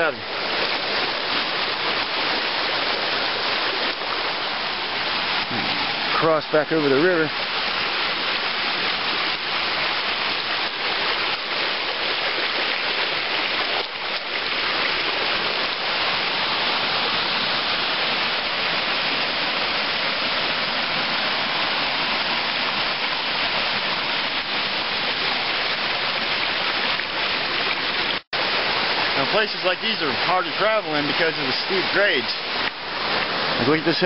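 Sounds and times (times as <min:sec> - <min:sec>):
creek water rushing over rocks: 0:00.0 - 0:34.0.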